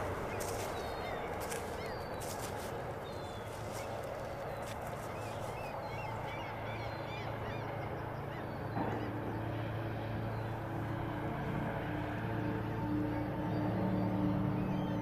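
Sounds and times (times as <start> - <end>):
birds calling: 0.0 - 15.0
steady low hum: 0.0 - 15.0.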